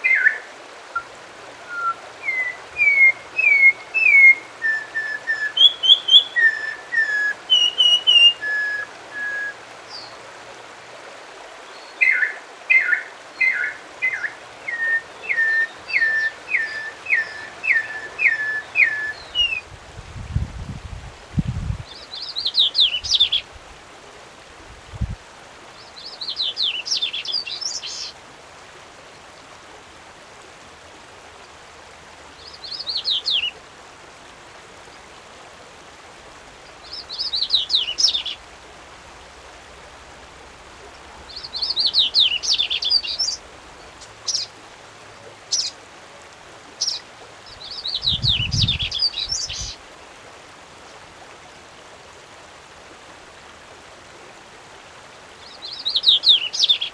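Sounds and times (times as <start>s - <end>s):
songbird singing high notes: 0.0s - 10.1s, 12.0s - 19.6s, 36.8s - 38.4s, 41.3s - 43.4s, 46.8s - 49.8s
faint background hiss: 0.0s - 56.9s.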